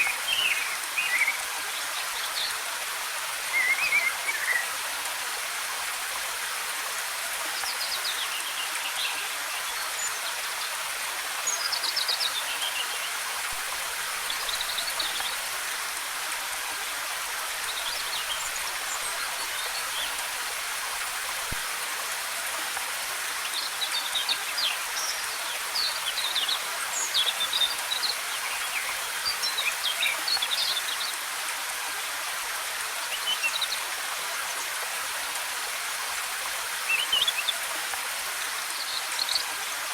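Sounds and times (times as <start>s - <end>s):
waterfall rushing: 8.0s - 31.6s.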